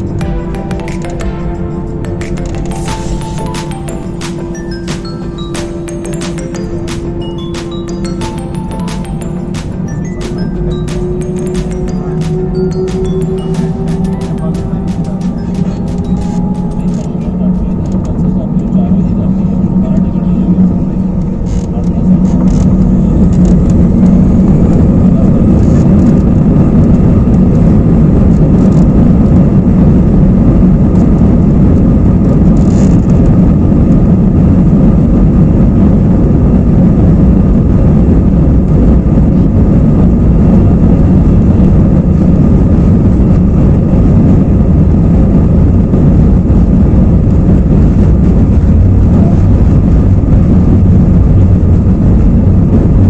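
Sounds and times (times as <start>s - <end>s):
jet engine roar in cabin: 0.0s - 53.0s.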